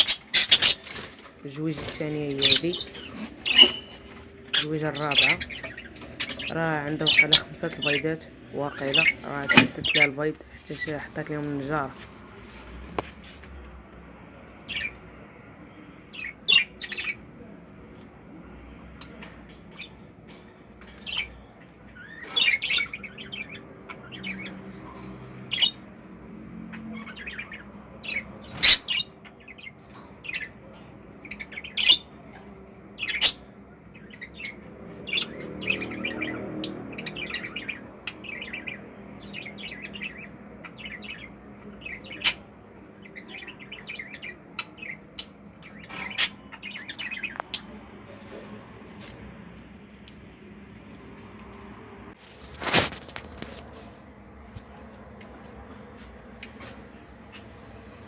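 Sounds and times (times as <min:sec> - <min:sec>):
budgerigars chirping and squawking: 0:00.0 - 0:11.9, 0:14.6 - 0:15.0, 0:16.1 - 0:17.3, 0:20.8 - 0:48.2, 0:56.4 - 0:58.0.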